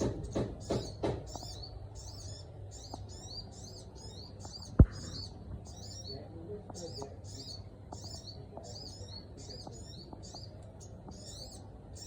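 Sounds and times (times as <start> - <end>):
songbird chirping: 0.0 - 12.0
sharp knock: 4.8 - 5.3.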